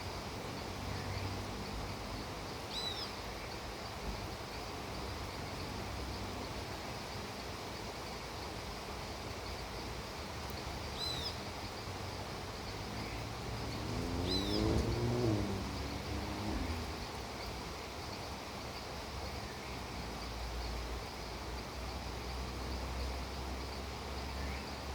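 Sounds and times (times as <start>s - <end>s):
rain falling: 9.2s - 18.2s
bird chirps: 13.0s - 15.1s.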